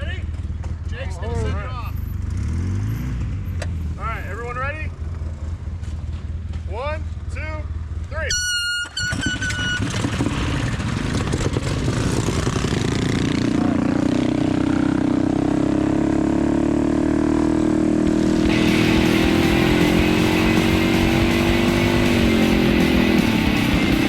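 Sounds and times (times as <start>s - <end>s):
mini bike engines revving: 8.4s - 24.0s.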